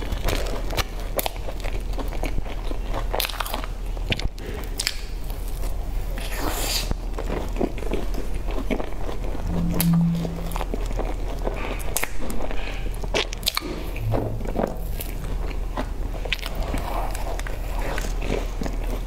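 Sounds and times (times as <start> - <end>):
low hum: 9.3 - 11.4, 13.4 - 16.3.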